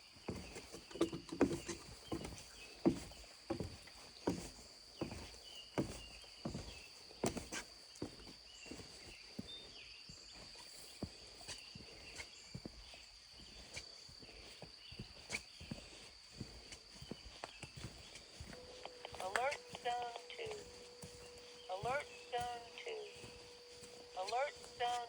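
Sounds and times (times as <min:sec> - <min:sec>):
footsteps on the ground: 0:00.0 - 0:25.0.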